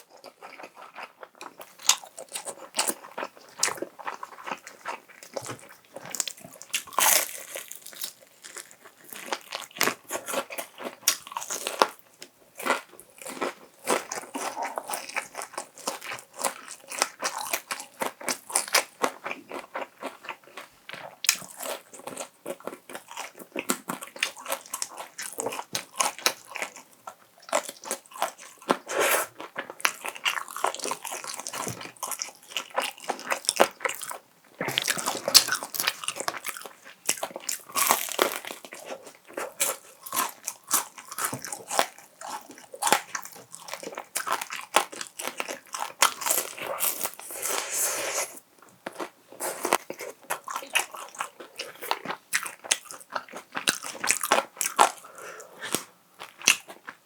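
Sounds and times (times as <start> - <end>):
crunching bites of fried chicken: 21.0 - 47.4, 48.9 - 57.0
wet chewing: 27.4 - 57.0.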